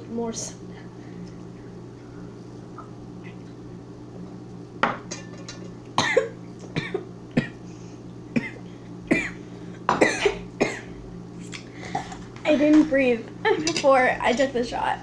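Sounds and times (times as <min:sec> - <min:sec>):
person coughing and spluttering: 0:06.0 - 0:07.6, 0:08.3 - 0:10.9.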